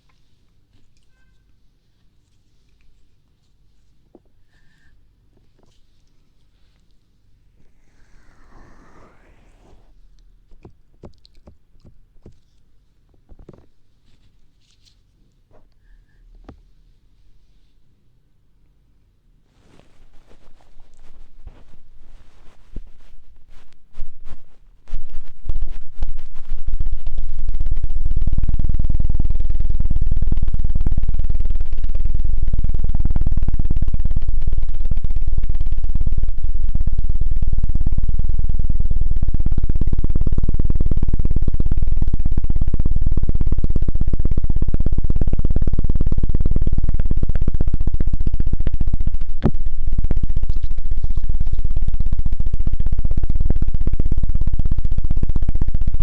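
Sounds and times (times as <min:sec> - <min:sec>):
rubbing on microphone: 0:05.6 - 0:15.7, 0:19.5 - 0:27.9, 0:49.0 - 0:52.5.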